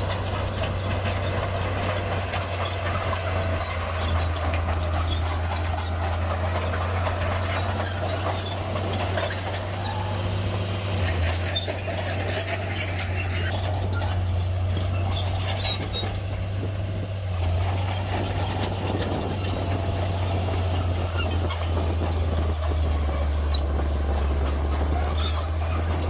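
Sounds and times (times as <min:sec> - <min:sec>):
heavy diesel machinery running: 0:00.0 - 0:26.0.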